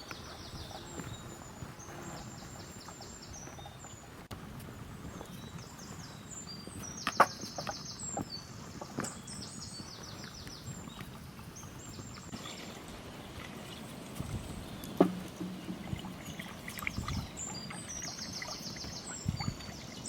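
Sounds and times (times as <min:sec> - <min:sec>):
sharp knocks: 0:15.0 - 0:16.2.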